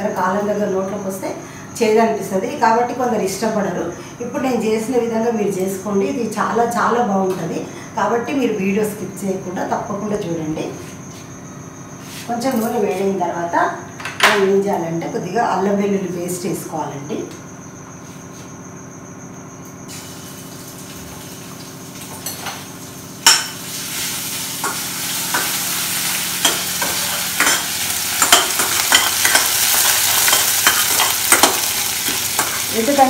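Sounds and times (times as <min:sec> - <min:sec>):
oil sizzling: 0:19.9 - 0:33.0.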